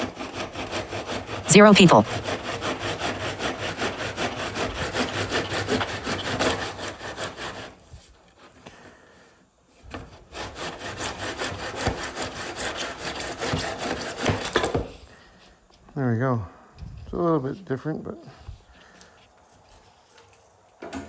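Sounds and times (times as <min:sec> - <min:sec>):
hand saw cutting wood: 0:00.0 - 0:01.5, 0:02.1 - 0:08.7, 0:09.9 - 0:14.9.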